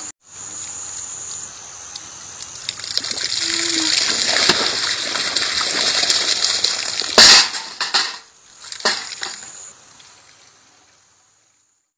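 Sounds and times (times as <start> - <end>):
rushing water: 1.0 - 11.7
loud clattering strike: 7.2 - 9.4.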